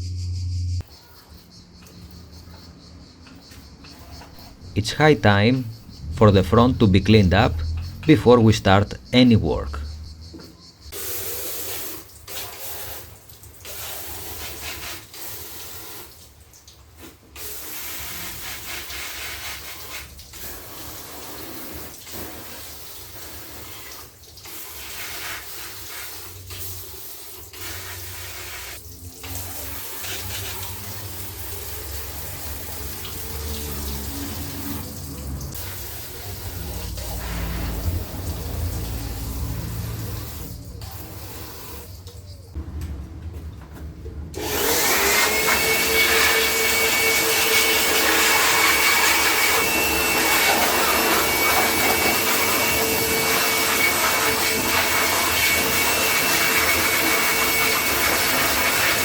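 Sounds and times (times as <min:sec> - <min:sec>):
water spray hissing on car: 0:10.9 - 0:42.1.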